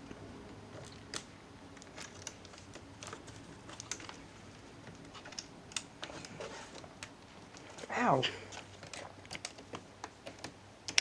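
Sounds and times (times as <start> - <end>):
small laptop parts clicking: 4.8 - 7.2, 8.6 - 11.0.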